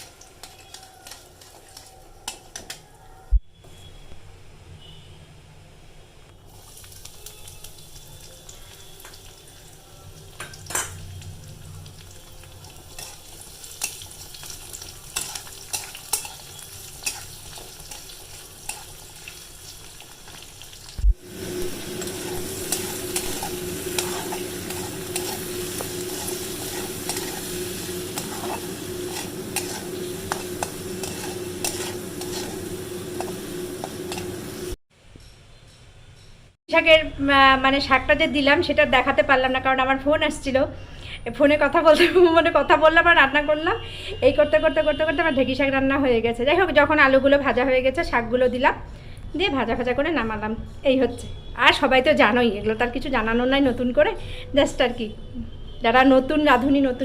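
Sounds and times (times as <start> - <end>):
food frying in hot oil: 0.0 - 2.1, 6.4 - 34.8
spatula stirring in a pan: 0.0 - 2.8, 12.2 - 20.8, 21.4 - 34.8.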